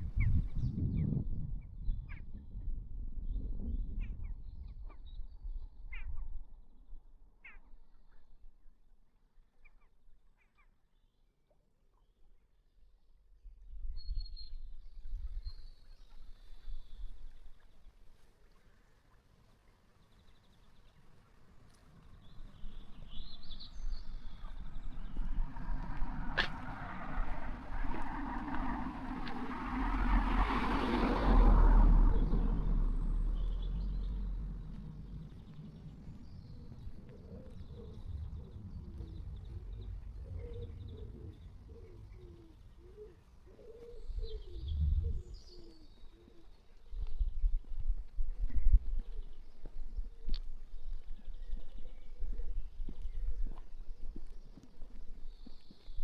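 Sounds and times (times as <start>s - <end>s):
birds chirping: 20.0s - 47.3s
car passing: 21.9s - 46.0s.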